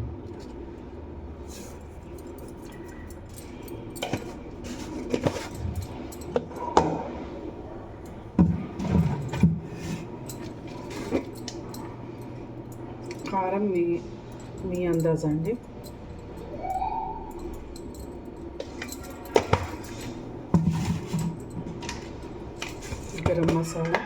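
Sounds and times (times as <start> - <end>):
dishes and utensils clinking: 2.2 - 7.1, 17.4 - 24.0.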